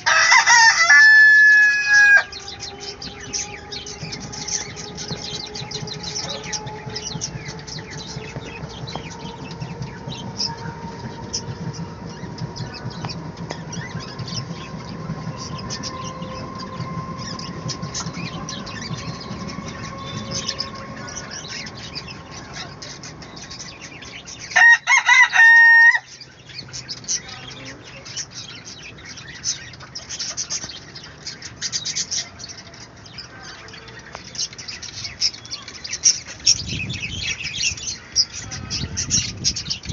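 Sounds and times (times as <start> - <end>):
rooster crowing: 0.0 - 10.8, 24.4 - 26.2
chickens clucking and chirping: 0.0 - 39.9.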